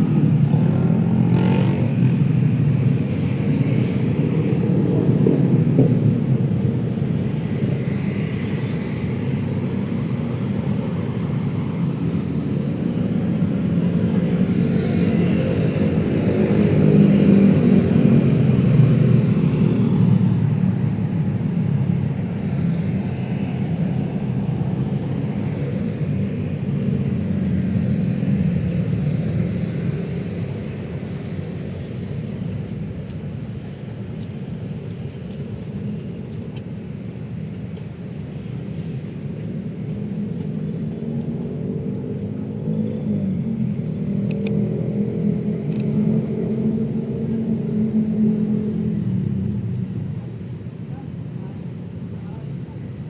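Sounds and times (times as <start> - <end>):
road traffic rumble: 0.0 - 53.0.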